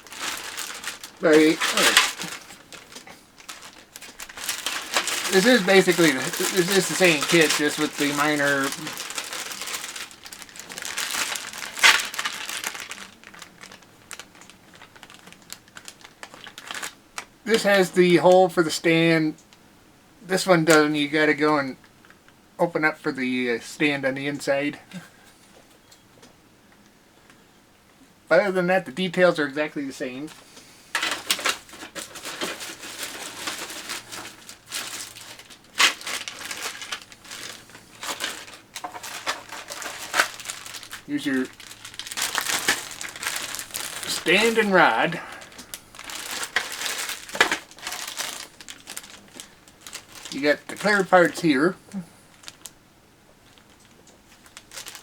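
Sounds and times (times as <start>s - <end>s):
plastic packaging crinkling: 0.0s - 18.3s, 30.3s - 52.8s, 53.4s - 55.0s.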